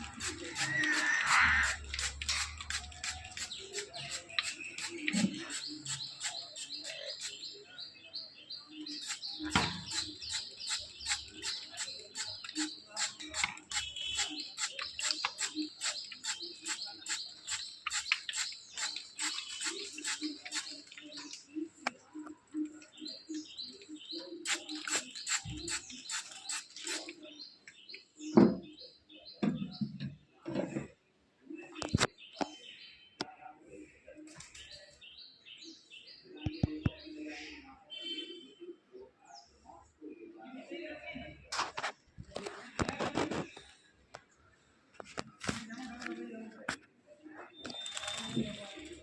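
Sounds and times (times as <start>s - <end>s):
parrots chirping: 0.0s - 7.6s, 8.9s - 21.0s, 24.4s - 27.1s.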